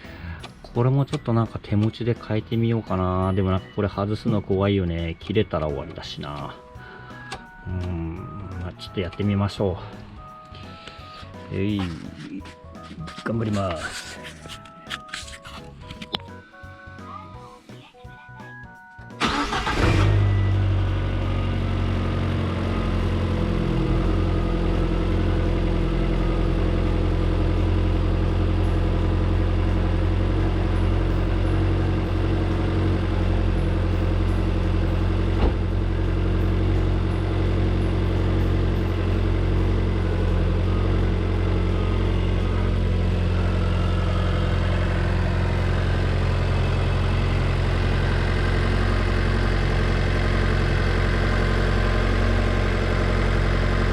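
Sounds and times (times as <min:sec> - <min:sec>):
car engine idling: 0:19.2 - 0:53.9.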